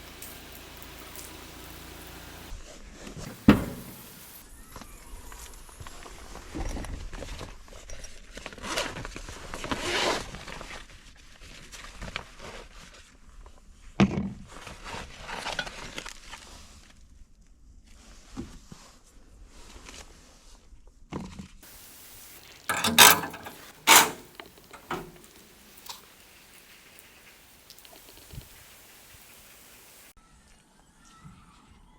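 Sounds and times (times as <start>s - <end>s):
rustling and scraping handling noise: 3.3s - 4.4s, 21.6s - 30.0s
loud sharp clatters: 21.7s - 29.1s.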